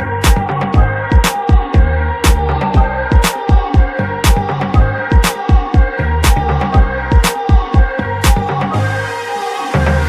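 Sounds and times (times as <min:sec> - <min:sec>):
upbeat electronic music: 0:00.0 - 0:10.0.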